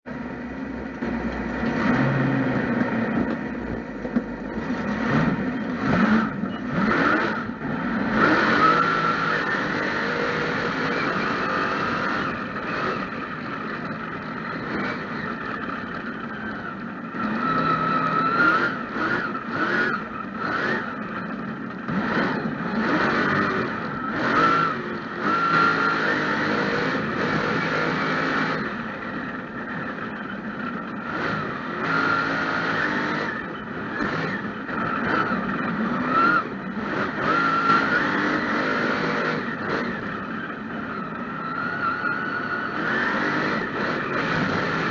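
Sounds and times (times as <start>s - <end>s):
truck engine revving: 0.1s - 44.9s.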